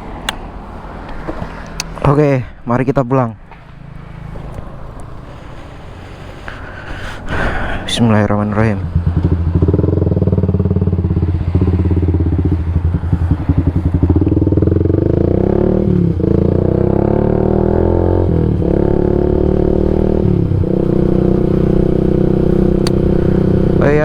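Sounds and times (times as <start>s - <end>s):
motorcycle engine accelerating: 8.1s - 24.0s.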